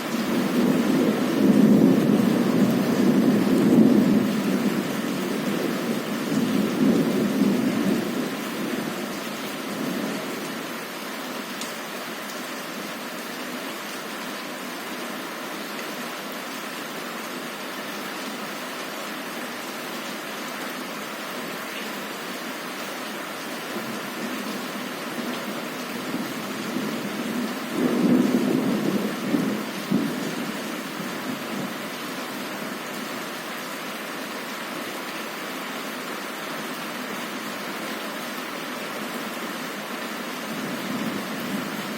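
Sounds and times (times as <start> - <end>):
heavy rain: 0.0 - 41.9
thunder rumbling: 0.4 - 8.9, 26.0 - 31.7
low thunder rumble: 26.1 - 31.7.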